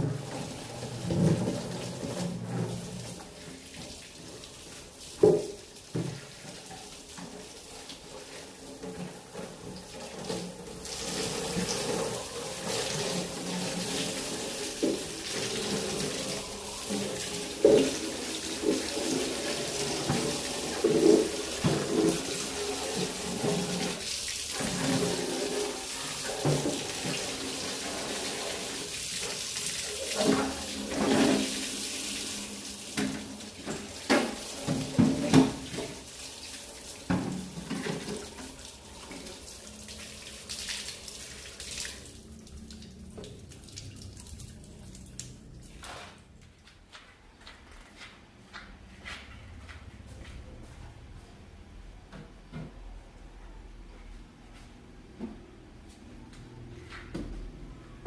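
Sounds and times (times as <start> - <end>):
water running and splashing: 0.0 - 46.1.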